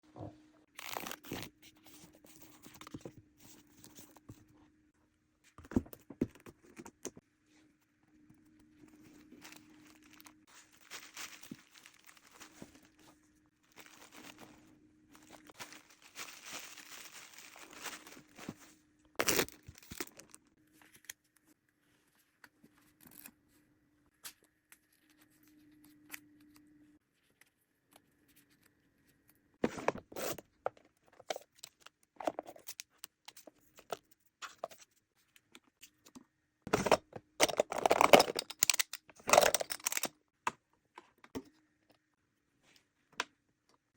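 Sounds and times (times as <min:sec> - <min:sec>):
packaging rustling: 0:08.9 - 0:20.4
wrap crinkling and tearing: 0:09.4 - 0:12.8, 0:15.2 - 0:18.4, 0:19.2 - 0:20.4.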